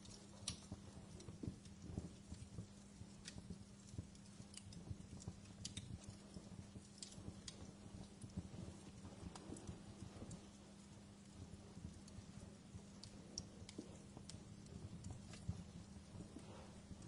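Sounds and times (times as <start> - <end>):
steady low hum: 0.0 - 17.0
wood fire crackling: 0.0 - 17.0.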